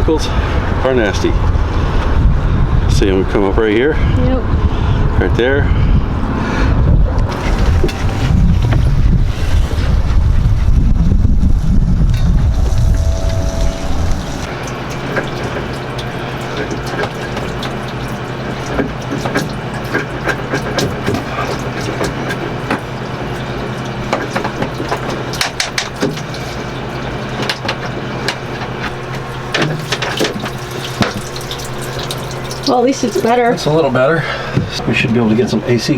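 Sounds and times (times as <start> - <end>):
steady low hum: 0.0 - 35.8.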